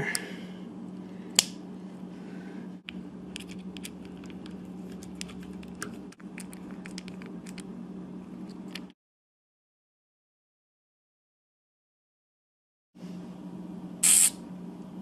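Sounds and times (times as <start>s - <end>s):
steady low hum: 0.0s - 9.0s, 13.0s - 15.0s.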